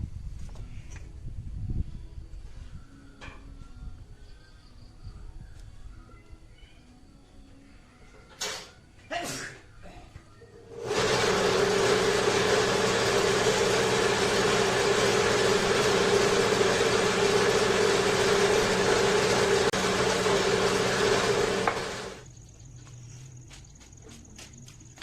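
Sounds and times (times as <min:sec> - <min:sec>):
power tool motor running: 0:10.6 - 0:22.2.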